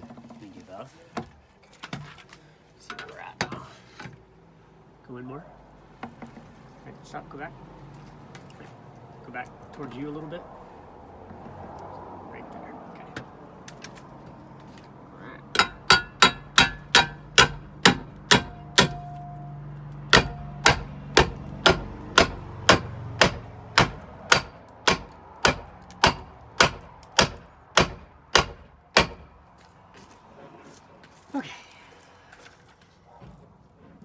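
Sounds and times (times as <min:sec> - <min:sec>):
hammer on metal: 0:15.6 - 0:19.4, 0:20.1 - 0:29.3.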